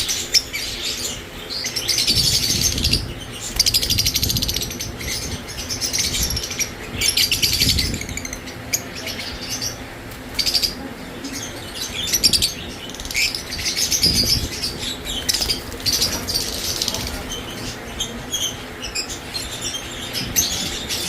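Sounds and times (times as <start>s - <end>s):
lovebirds shrill chirping: 0.0s - 21.0s
wing flapping: 14.1s - 17.5s.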